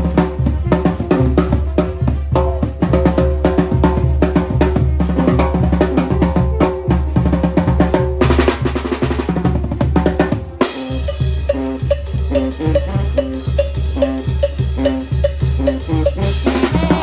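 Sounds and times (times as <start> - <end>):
brass band playing: 0.0 - 17.0
drum fill: 0.0 - 17.0.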